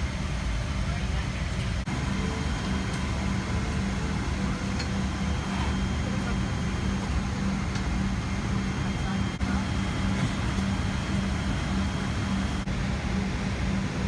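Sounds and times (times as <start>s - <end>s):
constant low hum: 0.0s - 14.0s
airliner cabin rush: 1.4s - 14.0s.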